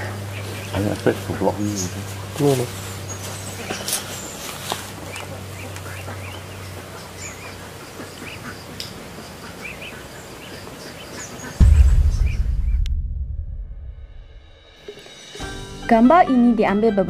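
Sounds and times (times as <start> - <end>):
birds chirping: 0.0 - 12.8.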